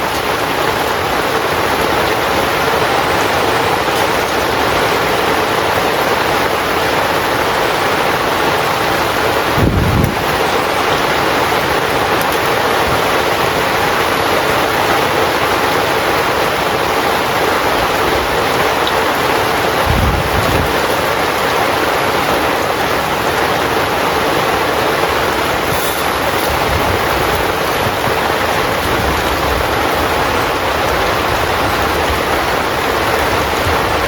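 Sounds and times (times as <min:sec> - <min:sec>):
heavy rain on a tent: 0:00.0 - 0:34.0
low rumbles: 0:09.5 - 0:11.0, 0:19.6 - 0:21.6.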